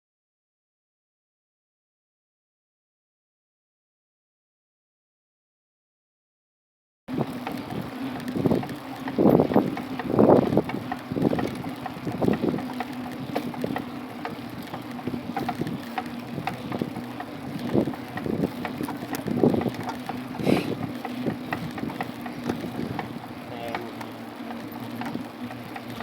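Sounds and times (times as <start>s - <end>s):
wind buffeting microphone: 7.1s - 23.4s
small clicks and rattles: 7.2s - 26.0s.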